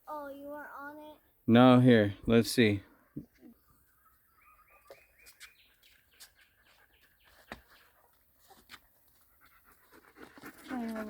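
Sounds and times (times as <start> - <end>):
faint bird chirps: 2.9 - 8.0.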